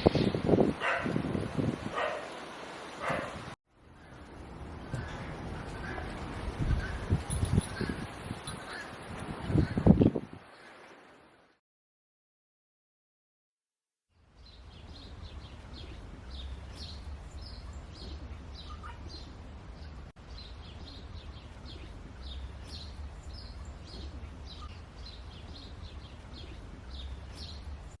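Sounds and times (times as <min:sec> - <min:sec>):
small birds chirping: 0:14.3 - 0:28.0.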